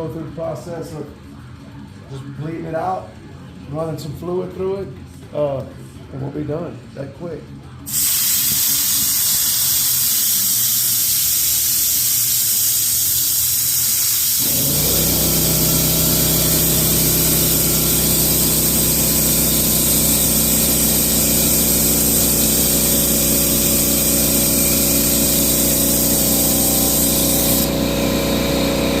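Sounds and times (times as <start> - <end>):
vacuum bleeder hissing: 7.9 - 29.0
low machine hum: 14.5 - 29.0.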